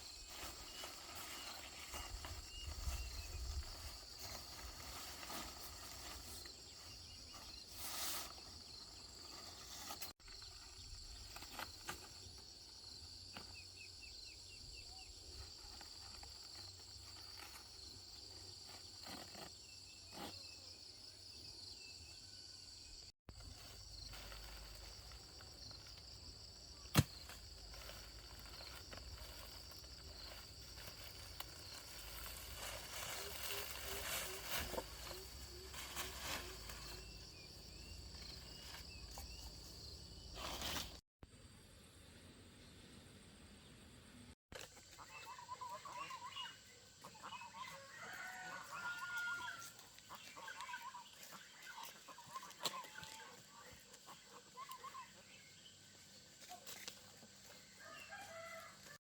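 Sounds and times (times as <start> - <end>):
insects chirring: 21.6 - 41.0.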